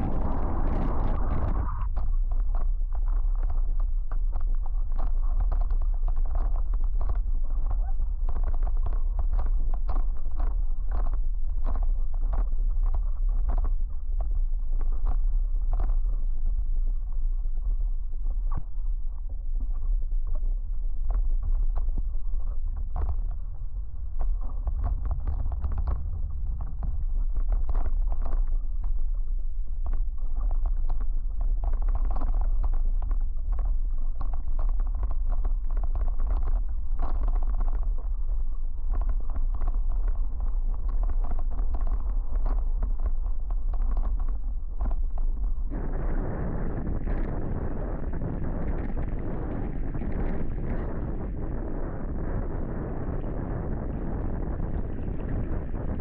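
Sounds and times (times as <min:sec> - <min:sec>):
wind buffeting microphone: 0:00.0 - 0:13.6, 0:22.0 - 0:30.6, 0:38.8 - 0:56.0.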